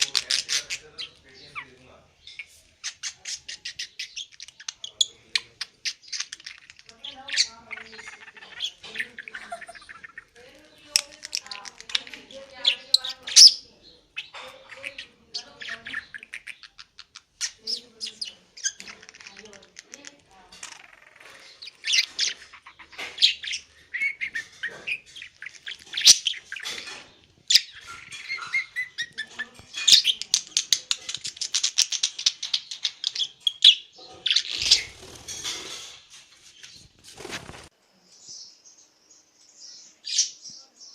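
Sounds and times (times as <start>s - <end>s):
fast clicking chatter: 0.0s - 1.3s, 2.8s - 13.6s, 14.2s - 33.6s
budgerigar chattering and warbling: 0.0s - 35.9s.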